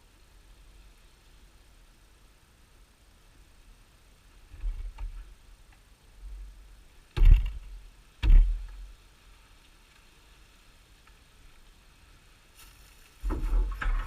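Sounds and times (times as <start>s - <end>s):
sharp knocks with low thud: 7.2s - 8.8s.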